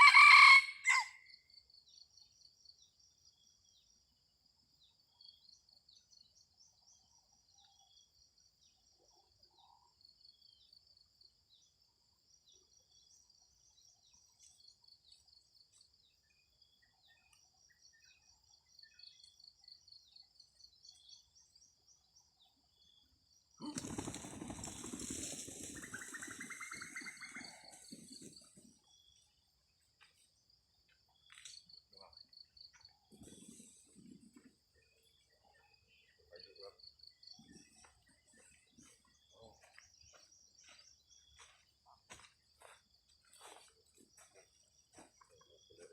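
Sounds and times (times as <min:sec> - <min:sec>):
faint chirps: 0:01.3 - 0:45.9
insects trilling: 0:22.9 - 0:29.5.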